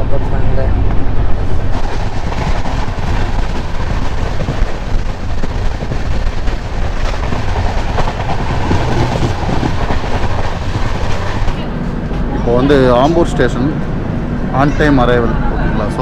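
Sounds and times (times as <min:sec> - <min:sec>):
train rumbling on rails: 0:00.0 - 0:16.0
wheels clicking over rail joints: 0:01.7 - 0:12.2.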